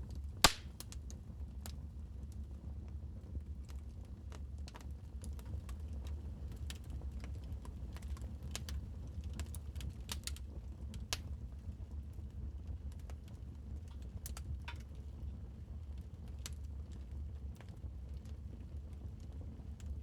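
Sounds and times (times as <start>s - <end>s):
wood fire crackling: 0.1s - 1.8s, 3.7s - 11.8s.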